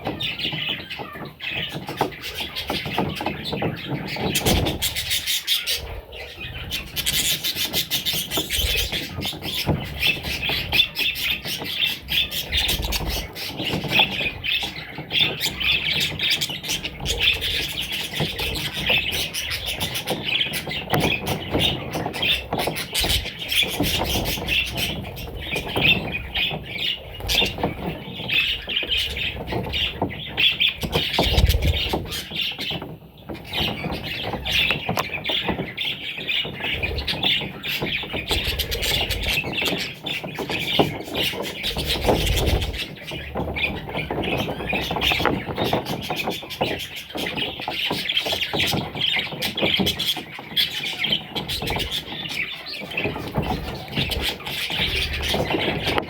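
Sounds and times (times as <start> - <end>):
parrot chicks chirping and squawking: 0.0 - 56.0.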